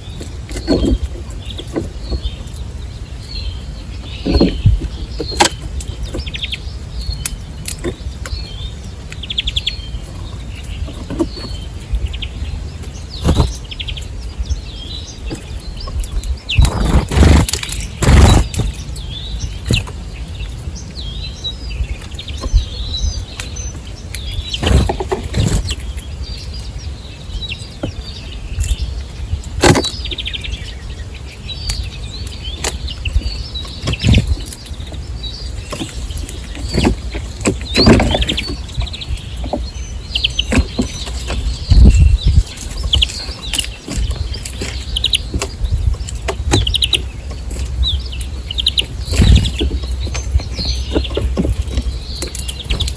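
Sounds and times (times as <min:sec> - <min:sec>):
small birds chirping: 0:00.0 - 0:52.9
wing flutters: 0:16.5 - 0:18.9.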